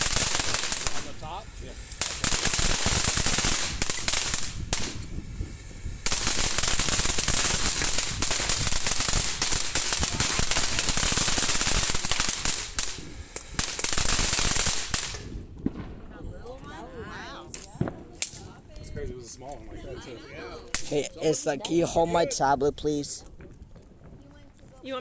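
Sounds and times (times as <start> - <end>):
firework crackling: 0.0 - 25.0.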